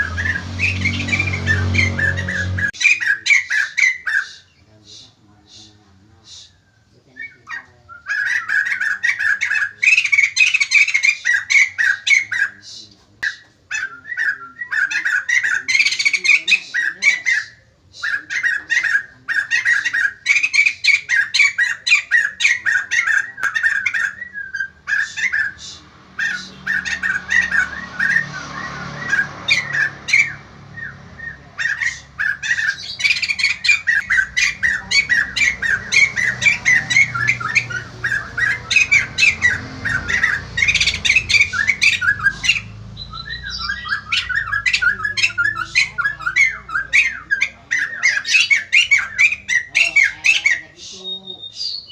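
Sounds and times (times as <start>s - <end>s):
bird rapid chattering call: 0.0s - 6.6s, 7.2s - 51.9s.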